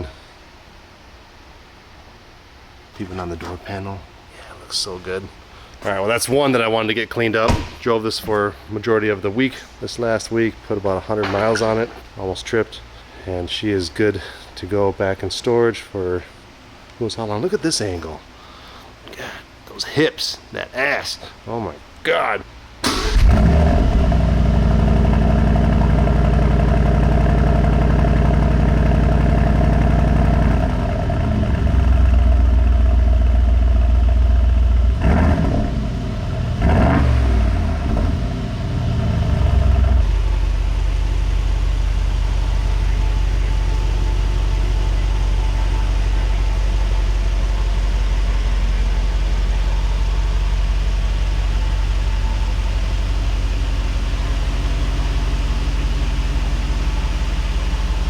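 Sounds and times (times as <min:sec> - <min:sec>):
car engine idling: 0:22.8 - 0:58.0
engine throttle blips: 0:22.8 - 0:58.0.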